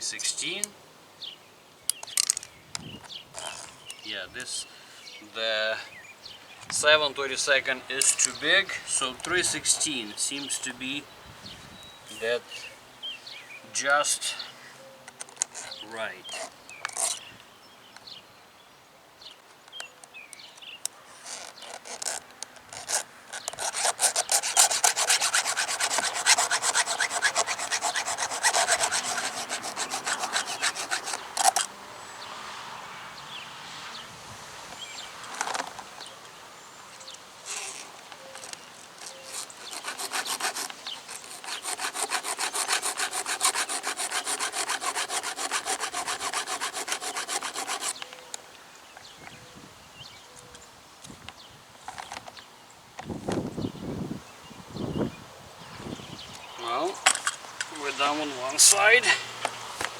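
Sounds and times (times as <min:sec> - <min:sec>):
file rasping on chainsaw chain: 0:07.9 - 0:10.7, 0:15.3 - 0:17.3, 0:21.2 - 0:31.7, 0:38.4 - 0:48.0, 0:57.1 - 0:59.2.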